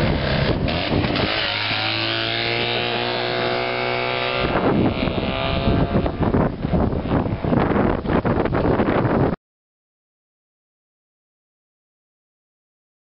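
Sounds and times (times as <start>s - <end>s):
small engine droning past: 0.0s - 6.3s
wind buffeting microphone: 0.0s - 9.4s.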